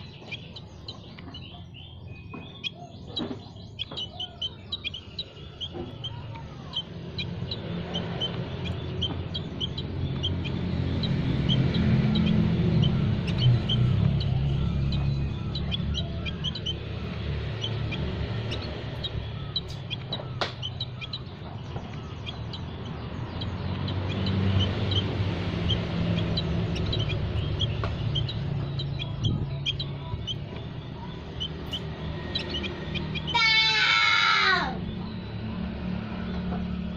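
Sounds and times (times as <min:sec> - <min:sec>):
small birds chirping: 0:00.0 - 0:36.9
low rumble: 0:05.4 - 0:33.3.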